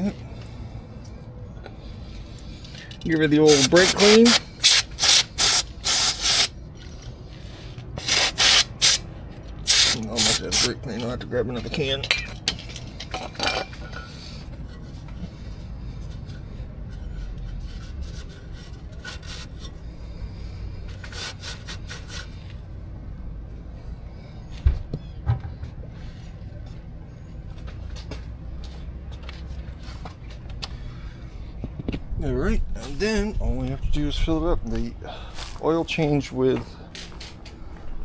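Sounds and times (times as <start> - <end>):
rustling of tools and parts: 0.2 - 8.0, 10.5 - 21.2, 35.2 - 38.0
low steady rumble: 10.8 - 21.1, 21.8 - 38.0.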